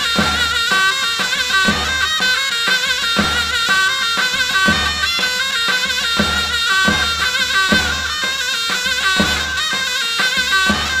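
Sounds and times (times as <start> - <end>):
regular drum beat: 0.0 - 11.0
wavering folk melody: 0.0 - 11.0.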